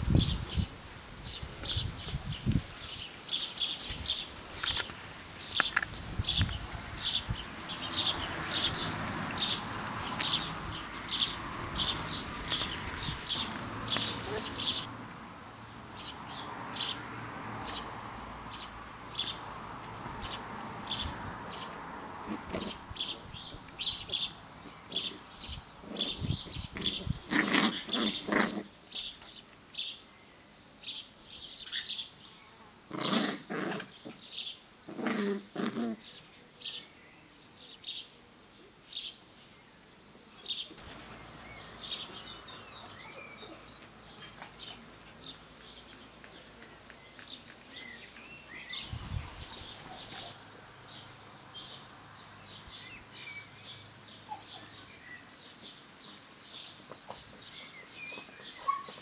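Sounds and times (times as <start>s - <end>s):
puppy's voice: 14.1s - 14.9s.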